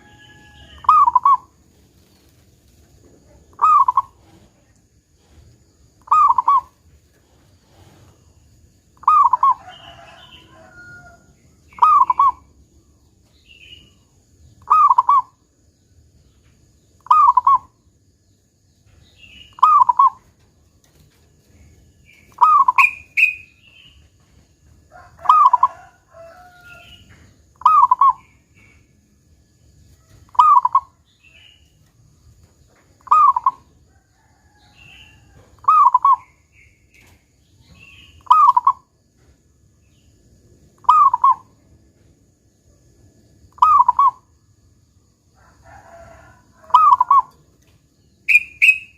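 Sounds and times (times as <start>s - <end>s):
dove cooing: 0.0s - 1.5s, 3.3s - 4.6s, 6.0s - 6.8s, 9.0s - 11.0s, 11.7s - 12.5s, 14.6s - 15.4s, 19.6s - 20.3s, 22.3s - 23.4s, 25.2s - 26.4s, 27.6s - 28.2s, 30.3s - 31.0s, 33.0s - 33.8s, 35.4s - 36.2s, 38.2s - 38.9s, 40.8s - 41.5s, 43.6s - 44.3s, 46.0s - 47.4s
faint high chirps: 46.7s - 48.9s.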